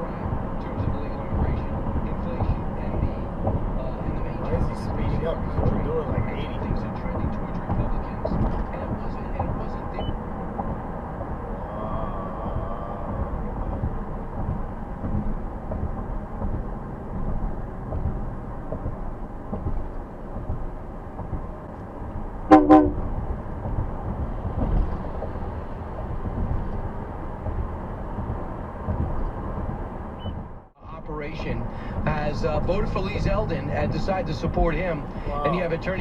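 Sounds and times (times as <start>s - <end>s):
road and engine rumble in car: 0.0s - 36.0s
car horn honk: 22.5s - 23.1s.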